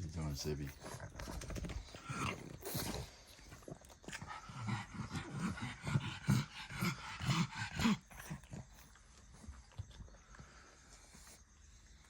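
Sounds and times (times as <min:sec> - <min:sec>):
dog grunting: 0:00.6 - 0:08.8.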